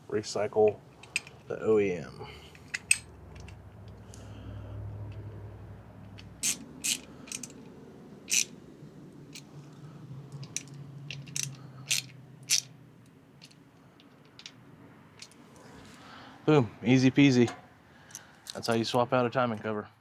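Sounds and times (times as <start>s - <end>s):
hand tool metallic clicks: 0.6s - 1.7s, 2.5s - 4.3s, 6.0s - 7.7s, 8.3s - 8.6s, 10.4s - 12.7s, 13.4s - 14.6s, 15.2s - 15.4s.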